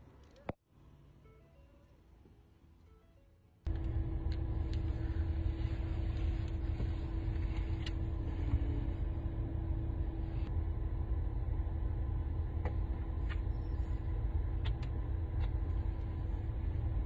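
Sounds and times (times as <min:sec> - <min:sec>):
faint steady hum: 0:00.0 - 0:17.0
car engine rumble inside cabin: 0:03.7 - 0:17.0.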